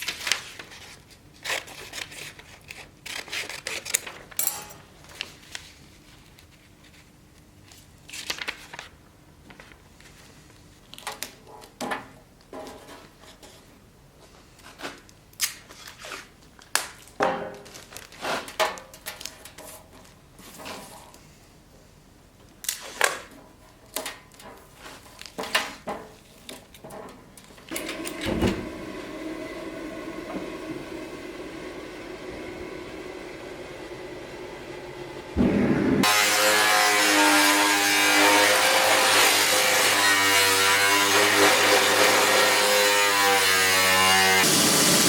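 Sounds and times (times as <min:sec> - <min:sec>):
steady machine drone: 0:33.0 - 0:36.4.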